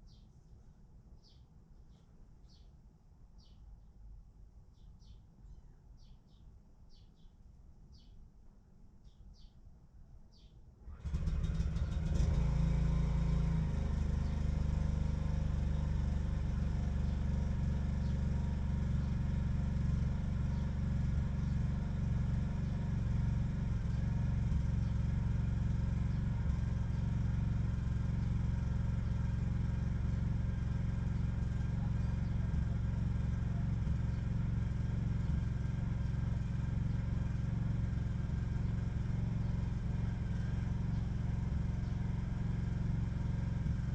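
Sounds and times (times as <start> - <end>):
engine starting and idling: 10.8 - 42.2.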